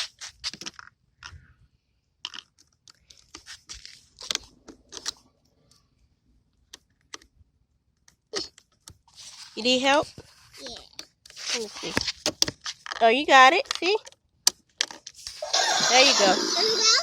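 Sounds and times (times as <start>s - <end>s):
crinkly rustles: 9.0s - 14.1s.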